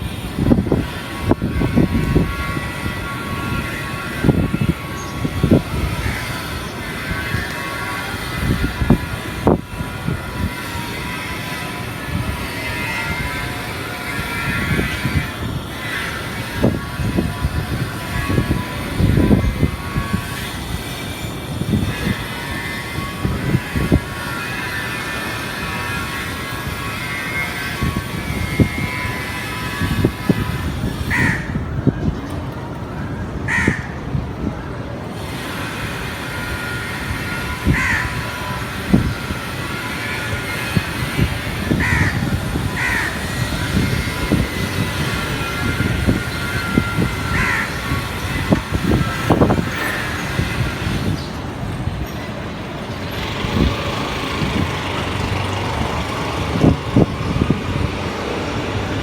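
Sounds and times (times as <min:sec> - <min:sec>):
traffic-like background noise: 0:00.0 - 0:59.0
crows cawing: 0:12.7 - 0:16.6, 0:31.0 - 0:31.6, 0:33.5 - 0:34.0, 0:37.3 - 0:38.7, 0:41.6 - 0:44.2, 0:45.0 - 0:50.6.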